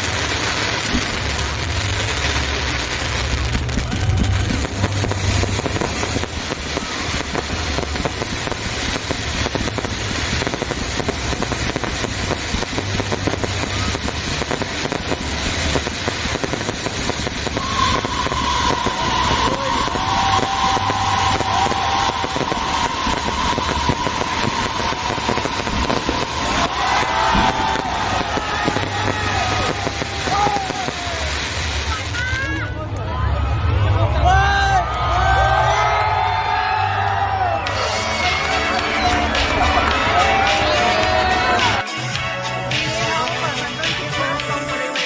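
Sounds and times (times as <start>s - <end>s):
fireworks booms: 0.0s - 32.7s
fireworks crackling: 0.0s - 45.0s.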